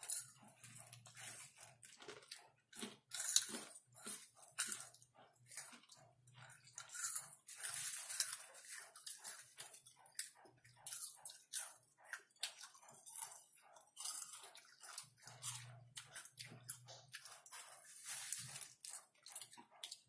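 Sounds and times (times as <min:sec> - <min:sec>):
hands rustling popcorn on plate: 0:00.0 - 0:09.6, 0:15.6 - 0:20.0
popcorn crunching: 0:00.0 - 0:20.0.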